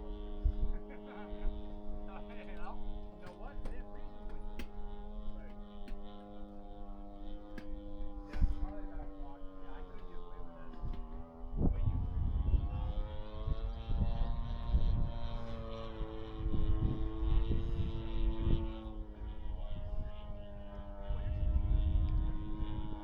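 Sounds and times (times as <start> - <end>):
model plane engine droning: 0.0 - 23.0
gusty low rumble: 1.9 - 15.2.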